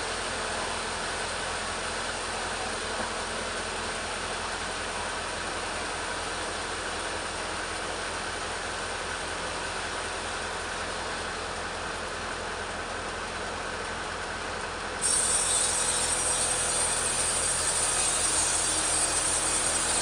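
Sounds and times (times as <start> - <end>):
chainsaw cutting log: 15.0 - 20.0.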